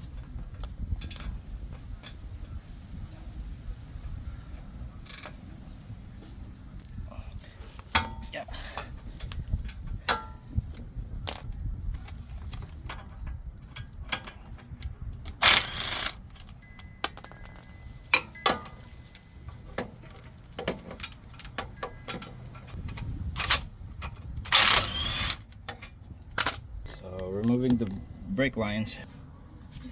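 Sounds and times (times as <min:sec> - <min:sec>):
metal tools clinking on brake parts: 0:11.2 - 0:11.4, 0:15.4 - 0:22.9.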